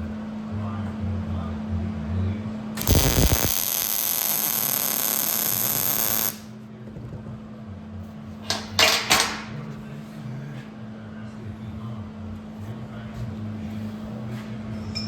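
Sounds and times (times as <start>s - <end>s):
electric arc welding crackle: 2.8s - 6.5s
tack-weld bursts: 2.8s - 6.5s
steady hum: 2.8s - 6.6s.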